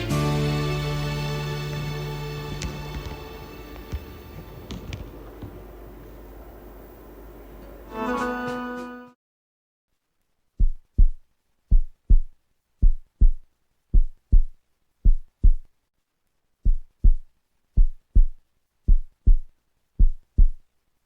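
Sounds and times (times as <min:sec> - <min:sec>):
heartbeat thumps: 0:10.6 - 0:15.7, 0:16.6 - 0:20.7.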